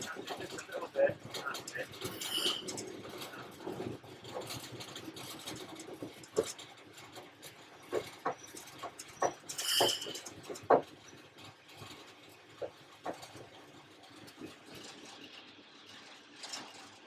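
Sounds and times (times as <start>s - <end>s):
brake squeal: 0.0s - 3.6s, 8.3s - 10.7s.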